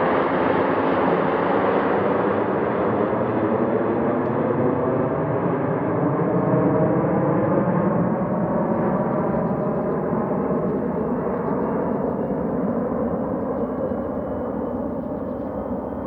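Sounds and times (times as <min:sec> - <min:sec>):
jet engines rumbling: 0:01.5 - 0:16.0.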